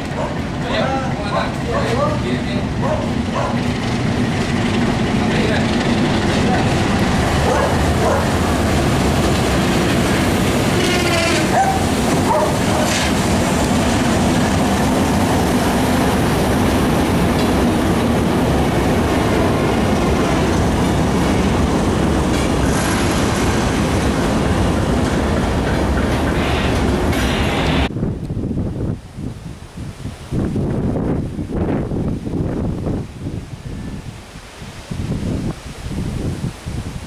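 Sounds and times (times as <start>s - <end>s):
freight train wheels rumbling: 0.0s - 28.9s.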